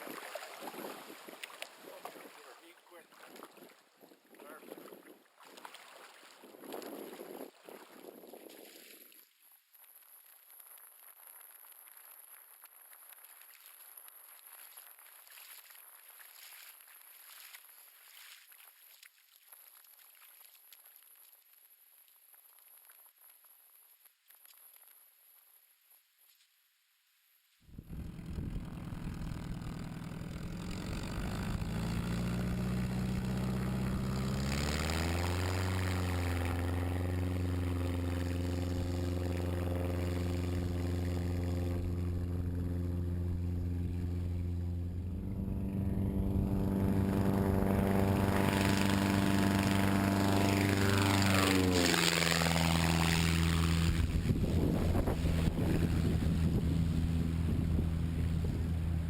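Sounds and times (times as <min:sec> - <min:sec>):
propeller plane engine running: 0:27.7 - 0:59.0.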